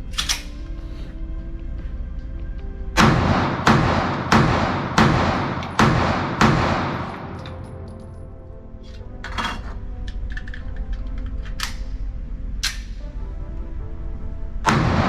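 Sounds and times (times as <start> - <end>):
pistol shots with ringing echo: 3.0 - 8.1, 14.7 - 15.0.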